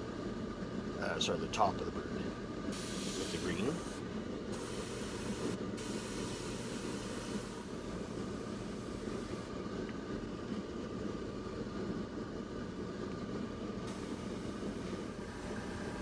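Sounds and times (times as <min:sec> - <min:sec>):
low machine rumble: 0:00.8 - 0:16.0
airbrush spraying hiss: 0:02.8 - 0:09.5, 0:13.9 - 0:16.0.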